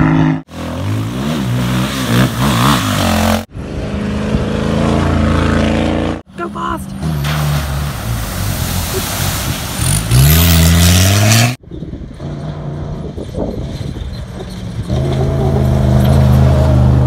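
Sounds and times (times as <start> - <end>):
engine revving: 0.0 - 6.3, 9.7 - 11.6
vehicle engines running hard: 0.0 - 17.0
loud rushing noise: 7.2 - 11.4.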